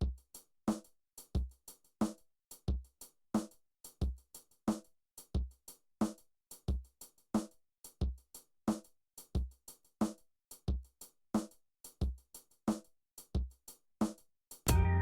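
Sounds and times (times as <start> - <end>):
drum machine beat: 14.7 - 15.0.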